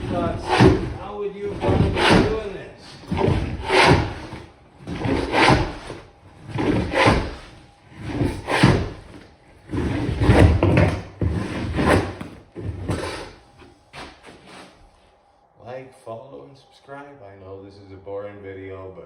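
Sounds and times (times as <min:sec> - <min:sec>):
carpet being scraped and torn up: 0:00.0 - 0:09.1.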